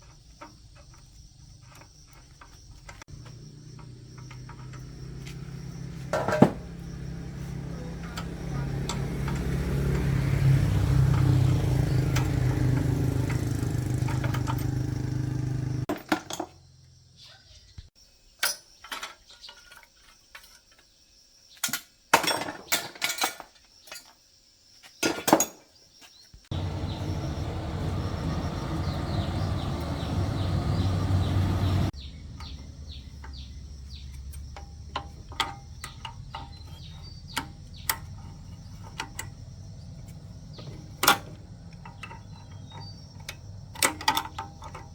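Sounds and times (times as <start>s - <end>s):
motor running: 6.7s - 15.9s, 26.5s - 34.4s
metal tools clinking: 12.1s - 15.2s, 32.3s - 44.9s.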